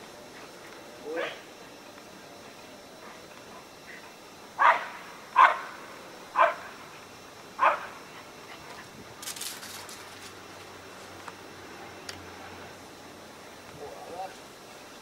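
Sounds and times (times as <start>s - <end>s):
dog barking: 4.6s - 5.8s, 6.4s - 6.7s, 7.6s - 7.9s.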